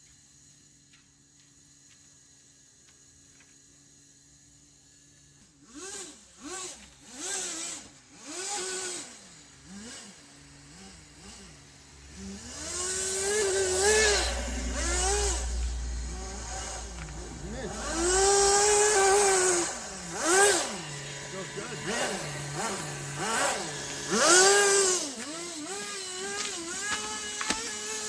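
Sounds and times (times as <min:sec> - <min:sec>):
small model engine revving: 0:00.0 - 0:28.0
low driving rumble: 0:12.0 - 0:25.0.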